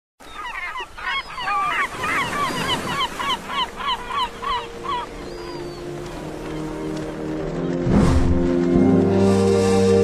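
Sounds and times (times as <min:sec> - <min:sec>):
birds calling: 0:00.2 - 0:07.8.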